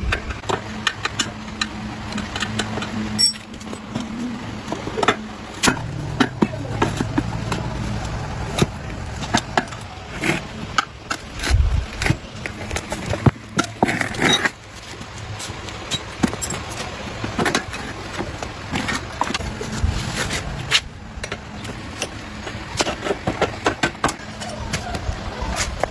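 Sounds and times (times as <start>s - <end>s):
motorcycle engine running: 0.1s - 13.6s.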